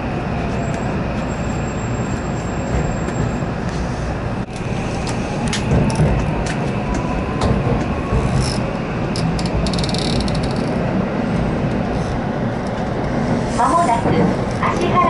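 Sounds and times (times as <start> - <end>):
train running rumble: 0.0 - 15.0.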